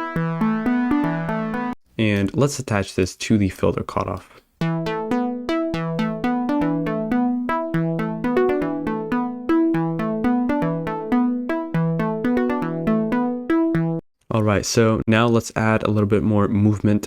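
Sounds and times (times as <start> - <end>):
plucky synth lead notes: 0.0 - 1.8, 4.6 - 14.0.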